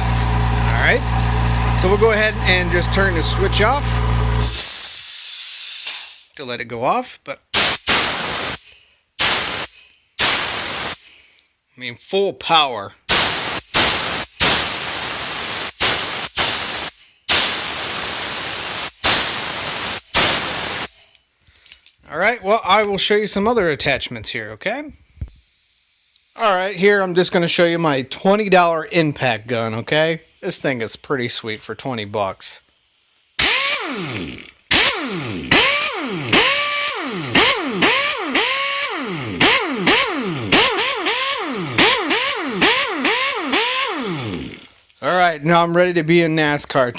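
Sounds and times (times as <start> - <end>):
air blowgun blasts: 0.0 - 5.0, 7.6 - 8.6, 9.2 - 11.1, 13.1 - 21.0, 33.4 - 44.6
pneumatic impact gun spinning: 0.0 - 6.3, 7.6 - 11.1, 13.1 - 21.1, 25.3 - 26.4, 30.0 - 45.0.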